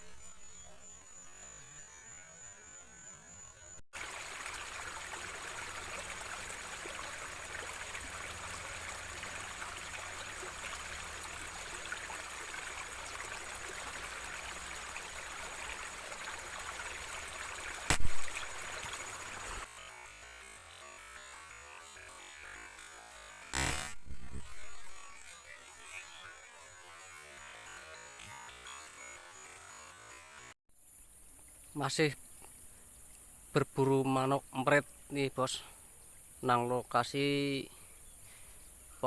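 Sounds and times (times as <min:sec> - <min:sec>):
outdoor hiss: 0:04.0 - 0:20.1, 0:29.3 - 0:39.0
air rifle shot: 0:17.9 - 0:18.4.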